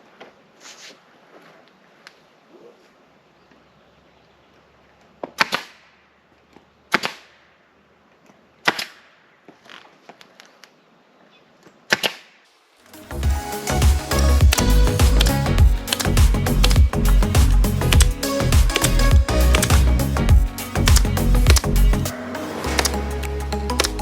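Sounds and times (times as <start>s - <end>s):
music: 12.9s - 24.0s.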